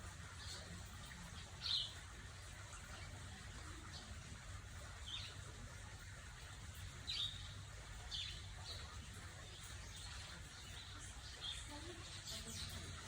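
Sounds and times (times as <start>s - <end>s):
bird chirping: 7.0s - 13.0s.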